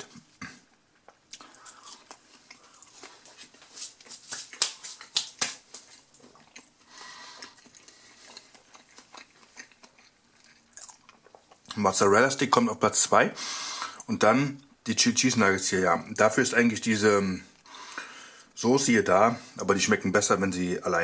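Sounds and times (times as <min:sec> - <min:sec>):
person chewing crunchy food: 0:00.0 - 0:11.8.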